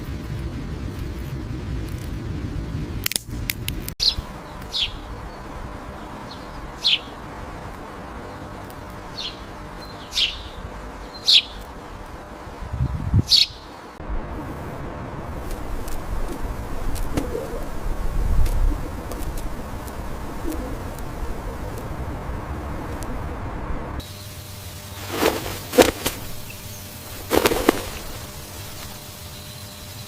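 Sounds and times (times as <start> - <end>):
low rumble: 0.0 - 8.2, 14.0 - 24.0
bird chirping: 4.0 - 11.7, 13.2 - 14.0, 25.0 - 30.0.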